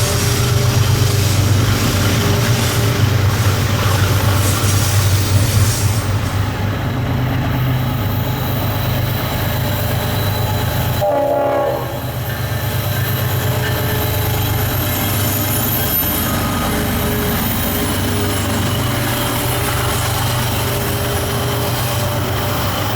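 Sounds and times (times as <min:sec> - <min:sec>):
freight train diesel rumble: 0:00.0 - 0:22.9
train horn blast: 0:11.0 - 0:12.2.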